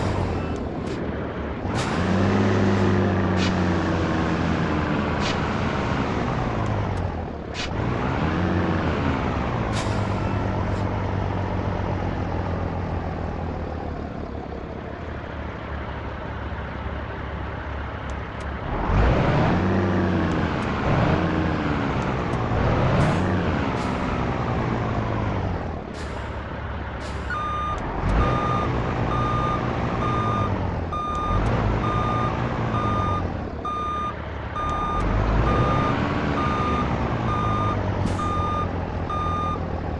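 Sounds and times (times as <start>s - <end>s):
truck diesel engine revving: 0.0s - 39.9s
reversing alarm beeping: 27.3s - 39.6s.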